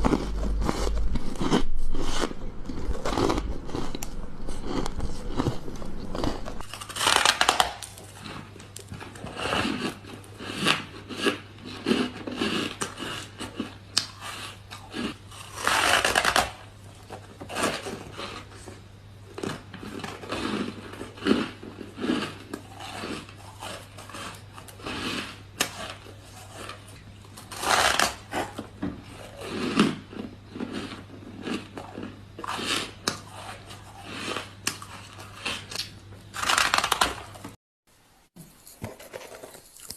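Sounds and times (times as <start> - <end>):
ice crunching between teeth: 0.0 - 16.6.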